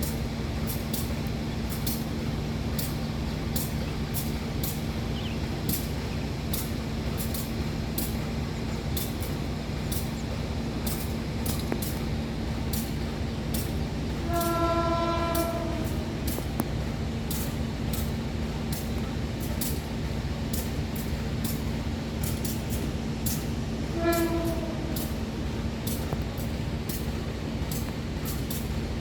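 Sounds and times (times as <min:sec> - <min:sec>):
locomotive idling: 0:00.0 - 0:29.0
train horn: 0:14.2 - 0:16.4, 0:23.8 - 0:25.4.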